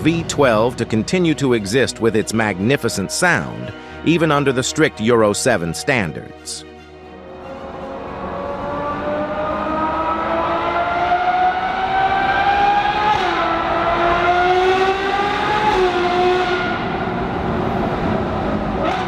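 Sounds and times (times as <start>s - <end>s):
engine accelerating through gears: 7.2s - 19.0s.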